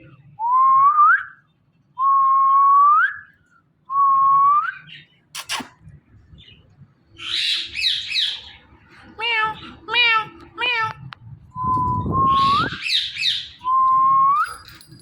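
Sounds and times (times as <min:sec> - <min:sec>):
parakeet whistling: 0:12.0 - 0:14.4.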